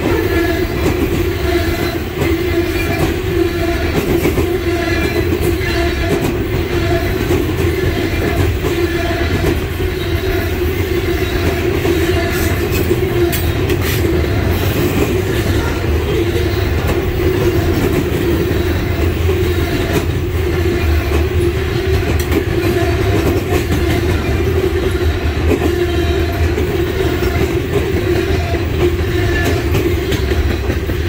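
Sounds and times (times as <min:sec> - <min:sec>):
steel wheels rumbling on rail: 0:00.0 - 0:31.0.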